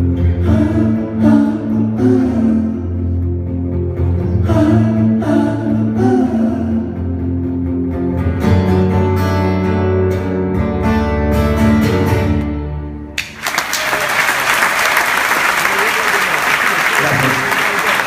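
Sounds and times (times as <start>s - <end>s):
live rock band playing: 2.9s - 13.4s
audience applause: 13.2s - 18.0s.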